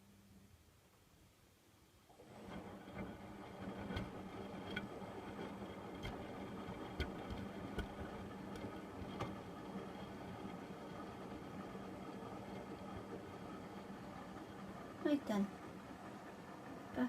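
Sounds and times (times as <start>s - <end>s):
washing machine motor hum: 1.9s - 17.0s
drum clicks and knocks: 2.9s - 9.4s.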